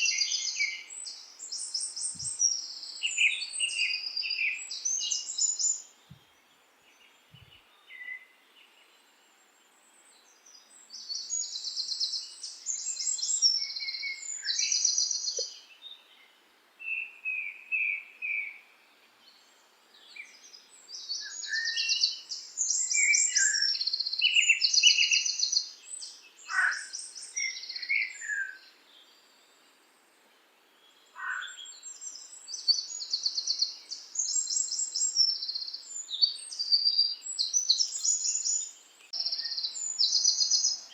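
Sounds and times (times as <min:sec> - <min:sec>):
downward-sweeping bird whistles: 0:00.0 - 0:05.8, 0:11.0 - 0:15.5, 0:21.0 - 0:28.6
songbirds trilling chirps: 0:00.0 - 0:40.9.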